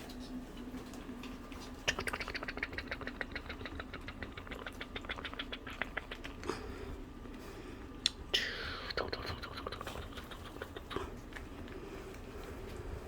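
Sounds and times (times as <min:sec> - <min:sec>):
puppies clicking and squeaking: 0:01.2 - 0:06.4, 0:09.0 - 0:11.6.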